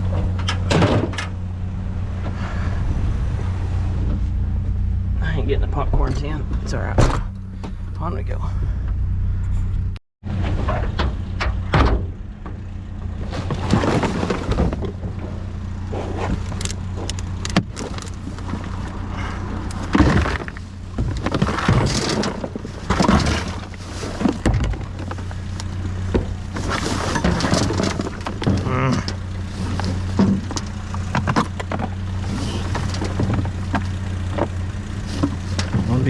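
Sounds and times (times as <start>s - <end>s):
knocks and rattles: 0.0s - 1.4s, 8.8s - 15.5s, 16.2s - 36.0s
road and wind noise: 0.0s - 36.0s
truck engine humming: 0.0s - 36.0s.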